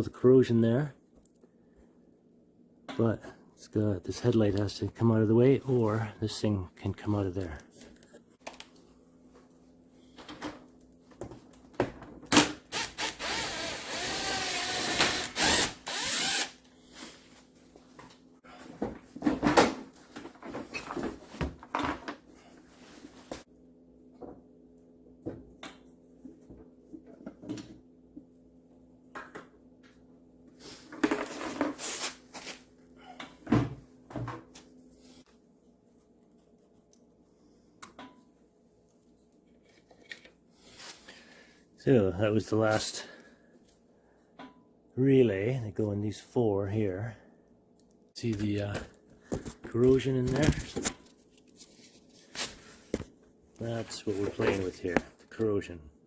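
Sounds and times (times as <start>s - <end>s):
power tool motor running: 12.7s - 16.6s.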